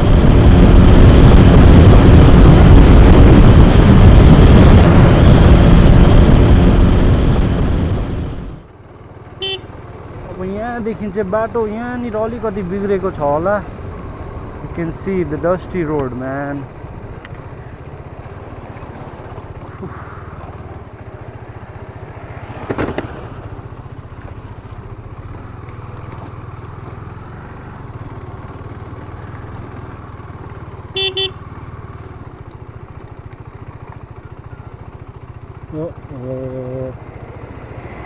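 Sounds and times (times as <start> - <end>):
motorcycle engine running: 0.0 - 38.0
double horn toot: 9.4 - 9.7, 30.9 - 31.4.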